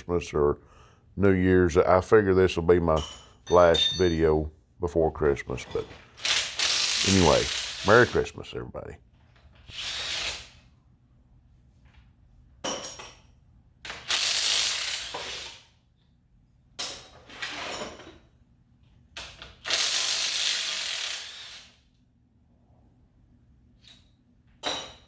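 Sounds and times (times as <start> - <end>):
air ratchet bursts: 6.2 - 8.2, 13.9 - 15.6, 19.6 - 21.8.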